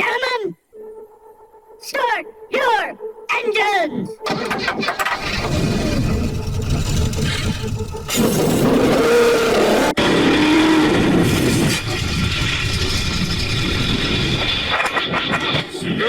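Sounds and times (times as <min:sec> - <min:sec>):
race car engines revving: 0:04.9 - 0:14.8.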